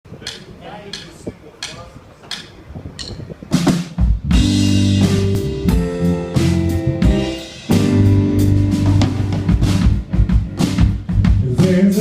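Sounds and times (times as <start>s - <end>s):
live band playing: 1.6s - 12.0s
drum fill: 3.6s - 12.0s.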